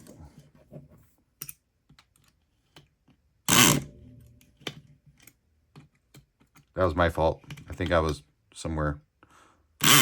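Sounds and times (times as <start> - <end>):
electric pick gun buzzing: 3.5 - 3.9.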